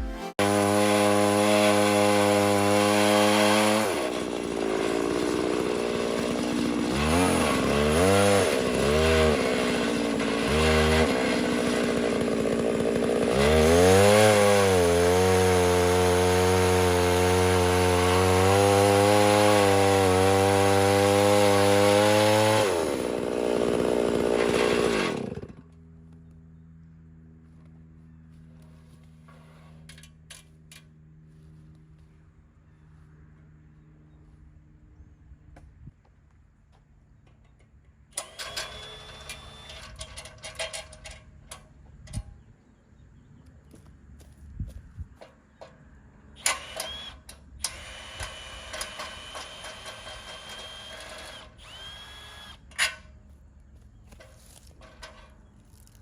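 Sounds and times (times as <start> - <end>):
chainsaw cutting a log: 0.4 - 25.8, 38.2 - 40.0, 46.4 - 53.0.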